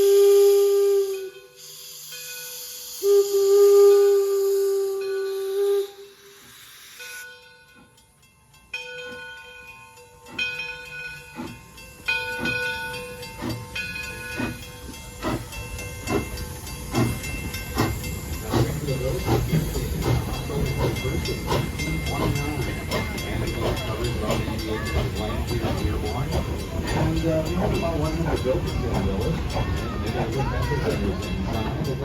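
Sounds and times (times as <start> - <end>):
steam locomotive whistle: 0.0 - 7.6
steam hissing: 0.0 - 8.0, 10.3 - 32.0
locomotive exhaust chuffs: 10.2 - 32.0.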